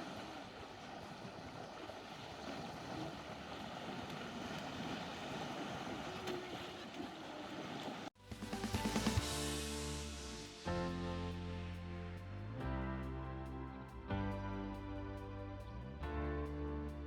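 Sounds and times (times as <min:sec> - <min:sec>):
running water: 0:00.0 - 0:17.0
music with drums: 0:08.2 - 0:11.4.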